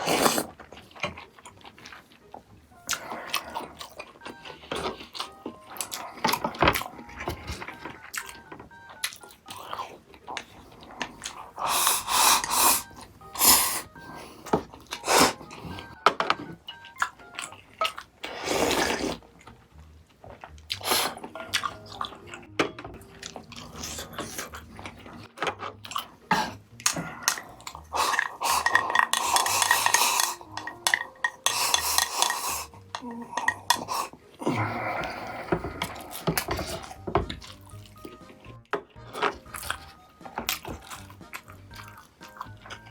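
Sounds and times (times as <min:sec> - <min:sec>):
eating sounds: 0:00.0 - 0:16.0, 0:16.6 - 0:42.9
light background music: 0:00.0 - 0:42.9
cutlery clinking on dishes: 0:28.1 - 0:34.2.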